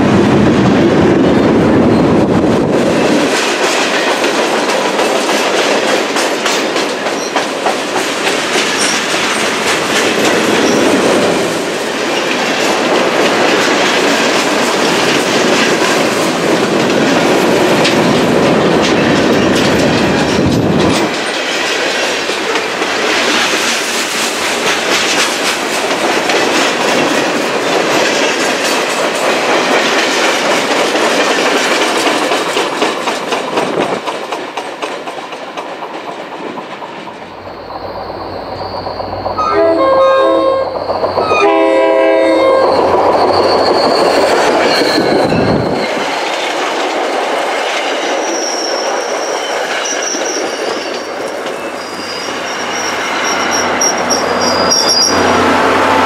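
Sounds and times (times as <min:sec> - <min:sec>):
freight train wheels clickety-clack: 0:00.0 - 0:56.0
high wheel squeal: 0:37.3 - 0:46.1, 0:48.2 - 0:56.0
train horn blasts: 0:39.4 - 0:42.8.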